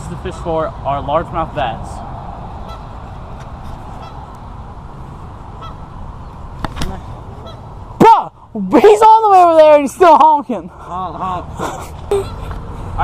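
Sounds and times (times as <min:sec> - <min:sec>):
outdoor background noise: 0:00.0 - 0:13.0
distant goose honking: 0:02.5 - 0:04.4, 0:05.4 - 0:08.0.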